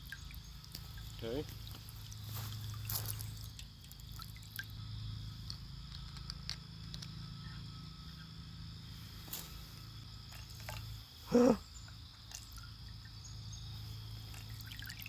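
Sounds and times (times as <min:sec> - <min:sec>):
water trickling and dripping: 0:00.0 - 0:05.6, 0:10.3 - 0:11.0, 0:11.8 - 0:15.0
small drip ticks: 0:00.0 - 0:07.3, 0:10.3 - 0:10.9, 0:11.9 - 0:13.2, 0:14.0 - 0:15.0.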